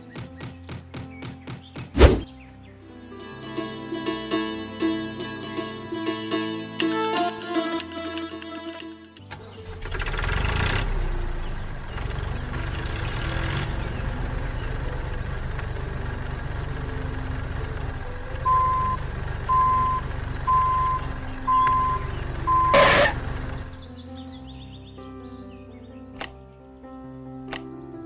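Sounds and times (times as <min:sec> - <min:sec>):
loud bang: 0:02.0 - 0:02.3
vehicle engine idling: 0:09.3 - 0:23.9
reversing alarm beeping: 0:18.4 - 0:23.2.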